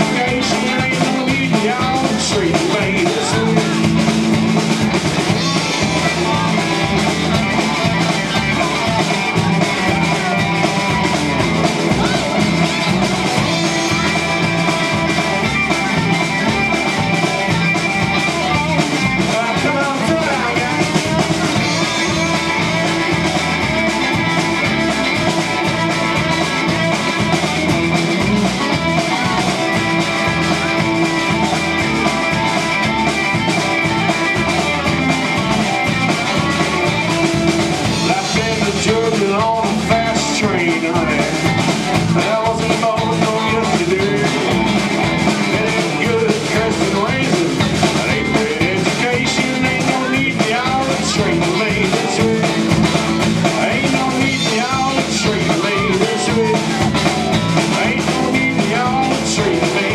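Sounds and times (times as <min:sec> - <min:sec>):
drum kit: 0:00.0 - 0:59.9
electric guitar: 0:00.0 - 0:59.9.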